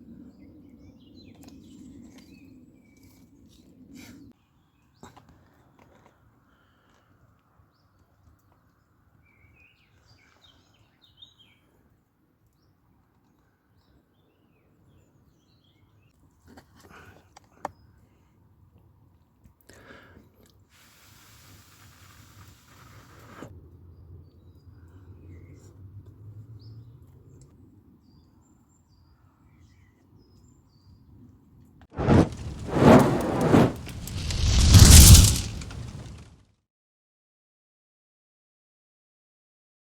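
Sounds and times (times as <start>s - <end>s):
loud burst of noise: 32.0s - 36.2s.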